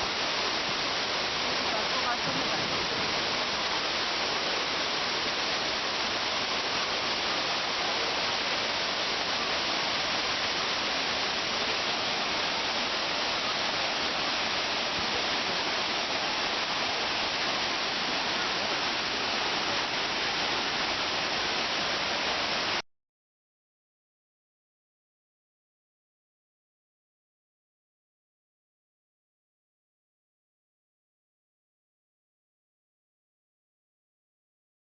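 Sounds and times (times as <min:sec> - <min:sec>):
waterfall rushing: 0:00.0 - 0:22.8.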